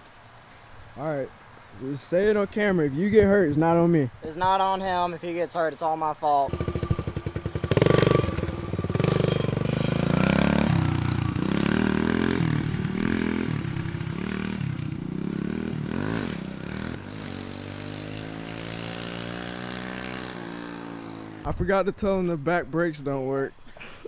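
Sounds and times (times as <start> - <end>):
dirt bike engine revving: 6.4 - 21.5.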